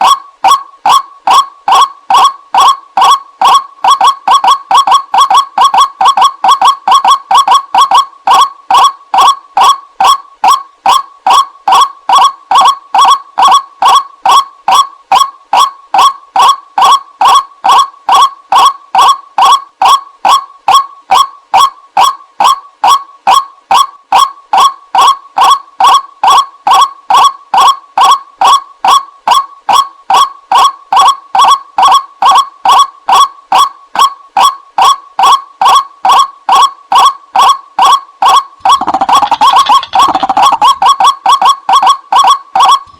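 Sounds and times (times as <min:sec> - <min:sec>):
waterhen nasal calls: 0:38.7 - 0:40.8.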